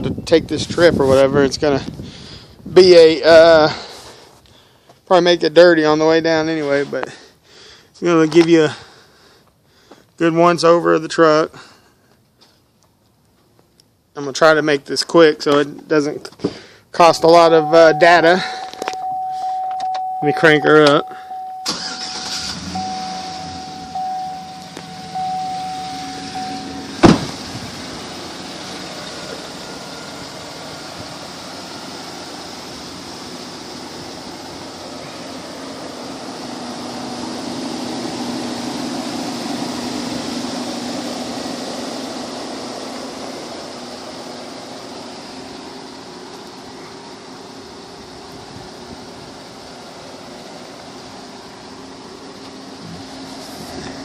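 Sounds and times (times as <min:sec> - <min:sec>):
truck engine idling: 0:16.4 - 0:54.0
chime beeping: 0:17.4 - 0:21.8, 0:22.6 - 0:27.0
sharp knock: 0:27.0 - 0:27.4.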